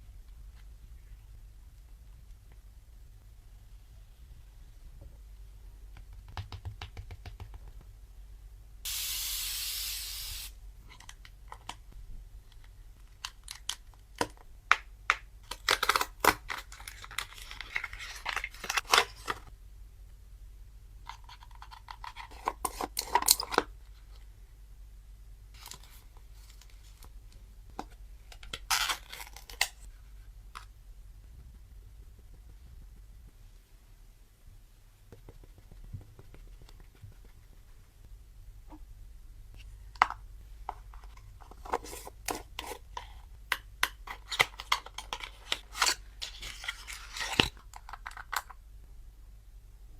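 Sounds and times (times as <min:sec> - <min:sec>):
steady hiss: 0:08.8 - 0:10.6
crinkly packaging rustling: 0:15.4 - 0:19.5.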